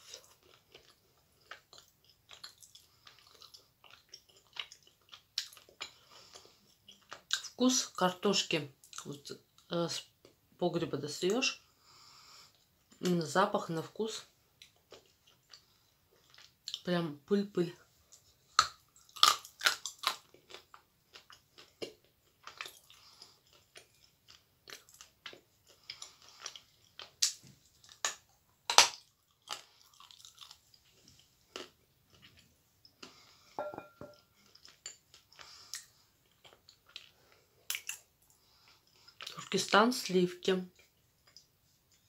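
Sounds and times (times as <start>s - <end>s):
crisp crunches of chewing clay: 0.0s - 7.6s, 18.5s - 33.3s, 34.4s - 39.5s.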